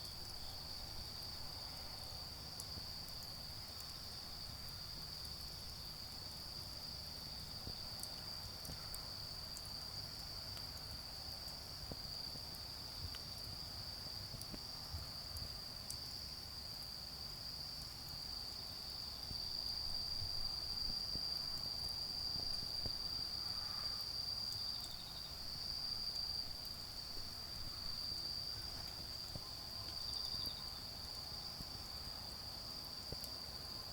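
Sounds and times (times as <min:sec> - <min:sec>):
insects trilling: 0:18.1 - 0:33.9.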